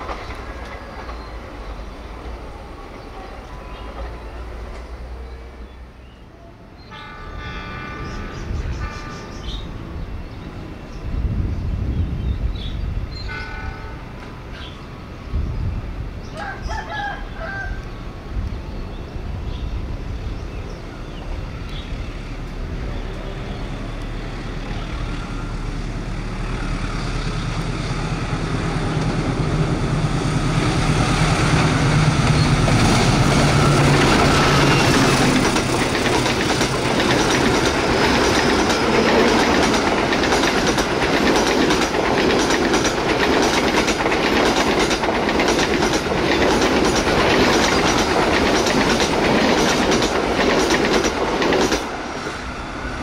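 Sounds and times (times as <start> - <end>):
locomotive engine hum: 18.0 - 53.0
wheels clattering on rails: 30.8 - 52.3.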